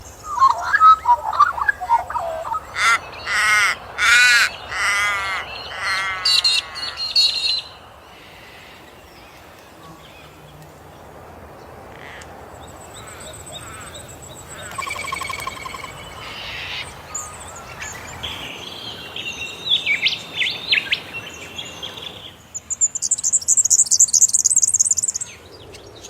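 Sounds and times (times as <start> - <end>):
harsh bird calls: 0.0 - 26.0
bird warbling phrase: 0.2 - 7.6.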